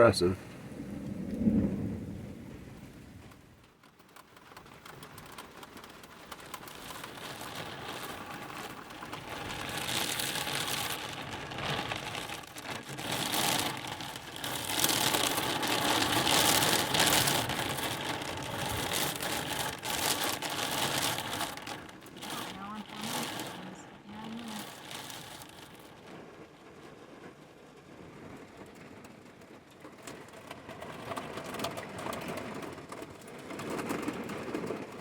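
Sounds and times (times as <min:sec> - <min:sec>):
rain pattering: 0:00.0 - 0:35.0.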